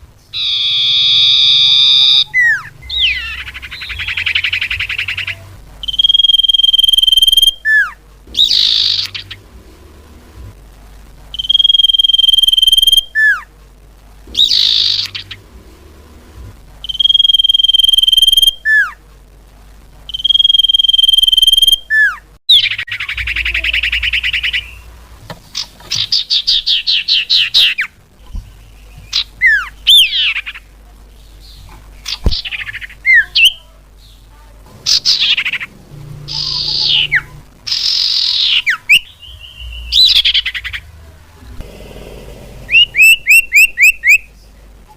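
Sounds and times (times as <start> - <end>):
bird whistled notes: 0.4 - 9.4, 11.4 - 13.4, 16.8 - 18.8, 42.7 - 44.3
bird chattering trills: 0.4 - 9.5, 14.3 - 15.5, 34.8 - 40.9, 42.5 - 44.3
short downward-slurred whistles: 5.8 - 7.8, 16.8 - 18.8, 20.1 - 22.1, 42.7 - 44.3.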